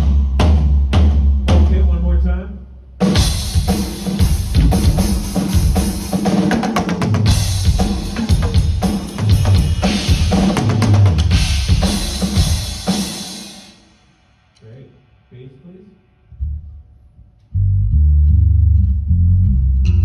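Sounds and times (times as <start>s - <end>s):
drum kit playing a groove: 3.0s - 13.9s.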